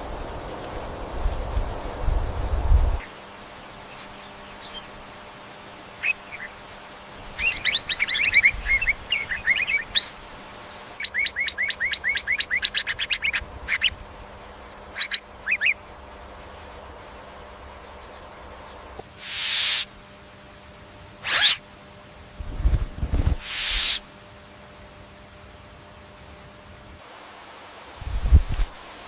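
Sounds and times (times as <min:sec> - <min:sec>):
bird chirping: 0:07.4 - 0:14.0, 0:14.9 - 0:15.8, 0:17.6 - 0:19.9, 0:21.2 - 0:21.6.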